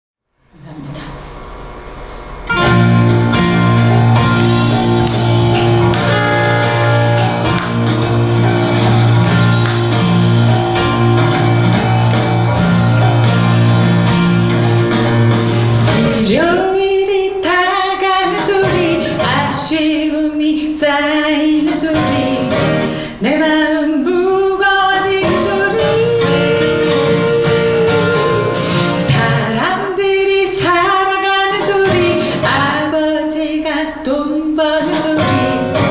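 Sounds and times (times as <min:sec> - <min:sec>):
acoustic guitar: 0:00.4 - 0:35.9
held low note: 0:00.5 - 0:16.6
person singing: 0:02.5 - 0:35.9.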